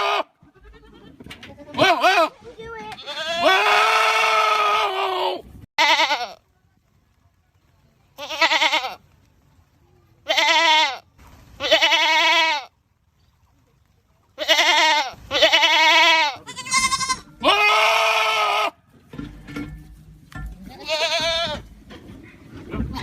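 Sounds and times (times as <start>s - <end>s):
goats bleating: 0.0s - 6.4s, 8.2s - 9.0s, 10.2s - 11.0s, 11.6s - 12.7s, 14.4s - 18.8s, 20.6s - 21.7s.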